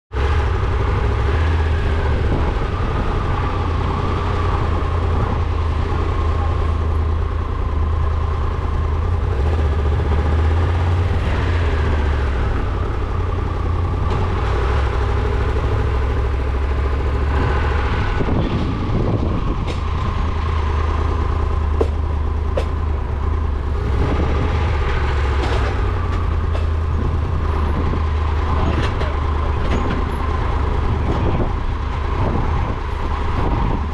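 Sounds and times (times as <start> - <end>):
vehicle engine and road rumble: 0.1 - 33.9.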